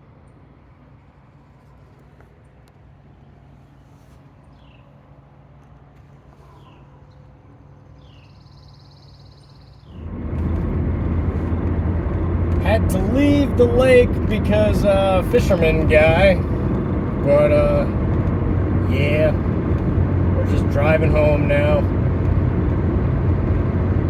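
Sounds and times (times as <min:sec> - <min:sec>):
bird chirps: 0:08.0 - 0:10.0
road noise inside moving car: 0:09.9 - 0:24.0
steady low hum: 0:10.0 - 0:24.0.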